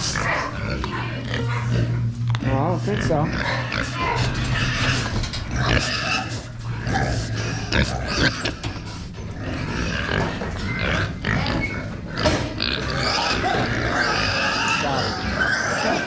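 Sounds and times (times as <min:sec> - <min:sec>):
low steady hum: 0:00.0 - 0:15.5
pigs calling: 0:00.0 - 0:16.0
scattered knocks: 0:04.0 - 0:13.0.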